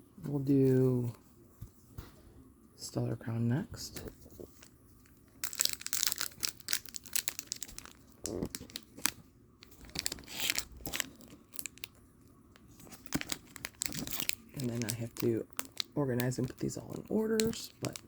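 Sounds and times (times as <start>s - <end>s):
foil wrapper tearing and crinkling: 5.4s - 18.0s.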